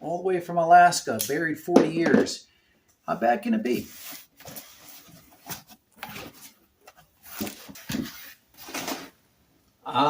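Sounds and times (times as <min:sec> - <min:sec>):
cardboard box rustling and scraping: 0:03.8 - 0:09.2.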